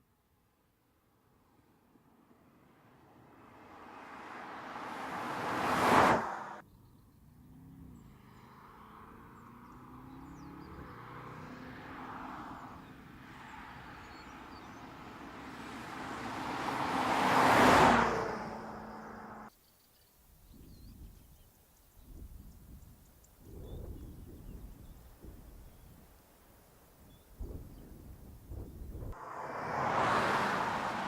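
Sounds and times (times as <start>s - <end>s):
car driving by: 2.7s - 6.6s, 7.4s - 19.5s, 29.1s - 31.0s.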